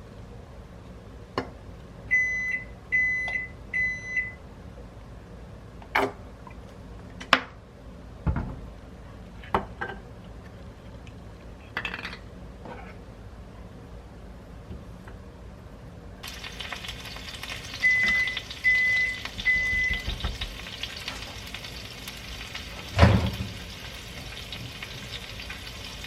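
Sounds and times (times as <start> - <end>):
microwave oven beeping: 2.1 - 4.5, 16.2 - 25.8.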